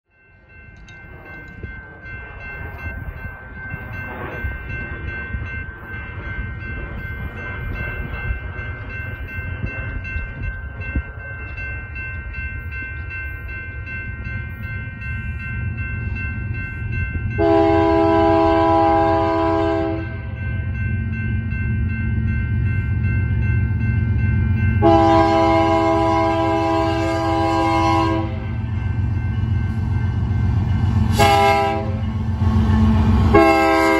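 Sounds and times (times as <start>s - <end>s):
train low rumble: 0.1s - 33.9s
locomotive horn chord: 17.4s - 20.3s, 24.8s - 28.5s, 31.1s - 33.9s.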